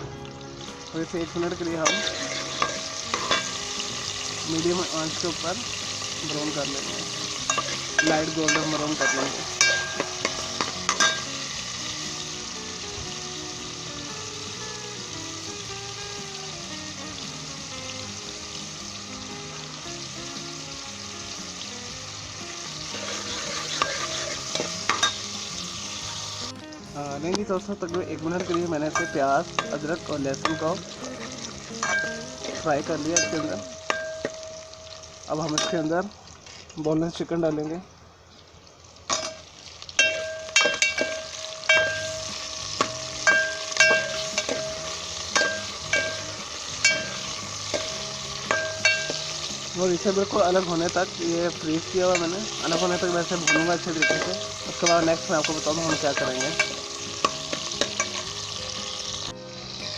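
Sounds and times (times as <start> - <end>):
onion and garlic sizzling in a pot: 0.0 - 59.9
utensil clinking against pot: 1.8 - 3.6, 7.5 - 11.3, 22.9 - 25.3, 27.9 - 30.8, 31.8 - 34.9, 35.5 - 35.9, 40.0 - 49.4, 52.1 - 58.3.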